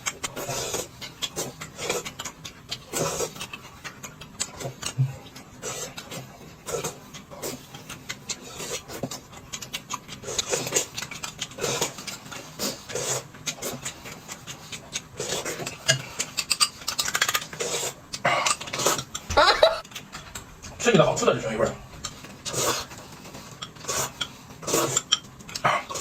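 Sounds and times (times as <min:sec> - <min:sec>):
person chewing food: 0:00.3 - 0:19.8.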